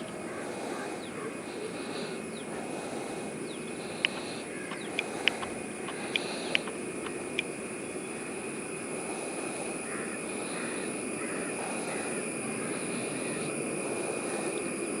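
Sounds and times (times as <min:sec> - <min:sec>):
insect drone: 0:00.0 - 0:15.0
bird chirps: 0:03.5 - 0:07.4.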